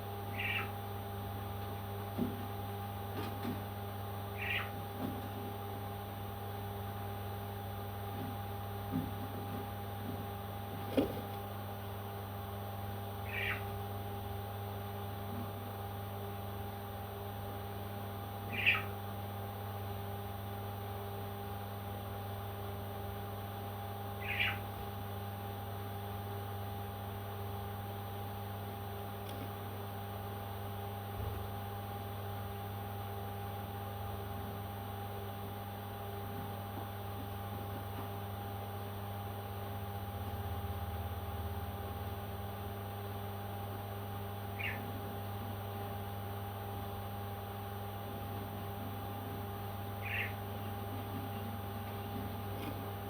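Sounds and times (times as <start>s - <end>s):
electrical hum: 0.0s - 53.0s
parrot squawking: 0.3s - 0.8s, 4.4s - 4.8s, 13.2s - 13.6s, 18.5s - 18.9s, 24.2s - 24.6s, 44.6s - 44.9s, 50.0s - 50.4s.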